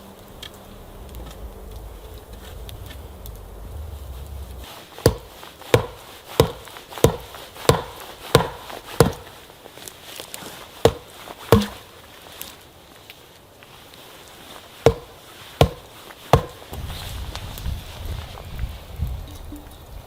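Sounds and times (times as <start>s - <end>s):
blade chopping wood: 5.0s - 9.4s, 10.8s - 11.9s, 14.8s - 16.8s.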